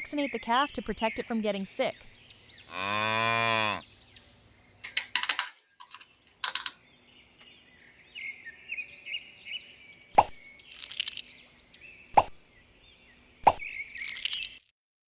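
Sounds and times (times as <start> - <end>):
cow mooing: 2.7 - 3.8
sharp clicks: 4.8 - 6.8.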